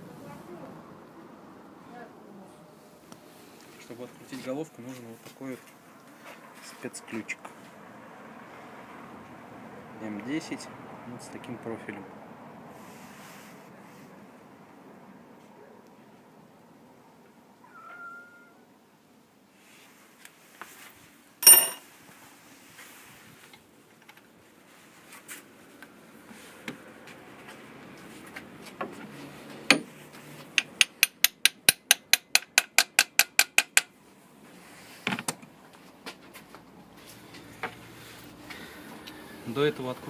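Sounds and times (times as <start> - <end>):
metal tools clinking: 21.4 - 21.8
tools clattering: 21.4 - 21.8.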